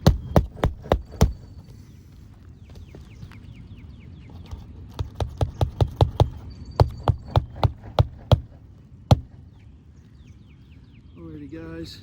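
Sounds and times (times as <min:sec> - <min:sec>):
hammer striking roofing nails: 0:00.0 - 0:01.5, 0:05.0 - 0:09.4.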